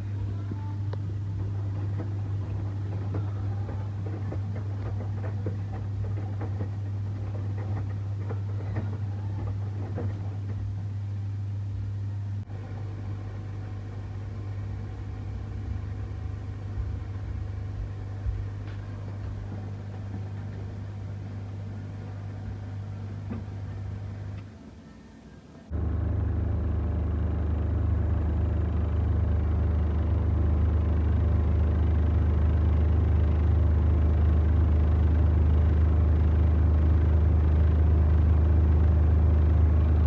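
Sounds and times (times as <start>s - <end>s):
washing machine motor hum: 0.0s - 40.0s
washing machine rattling: 1.0s - 11.4s.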